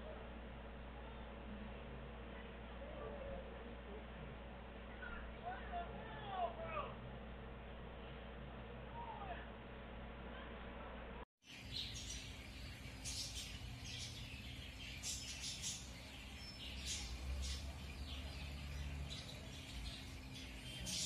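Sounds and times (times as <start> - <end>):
steady low hum: 0.0 - 21.0
small birds chirping: 11.4 - 21.0.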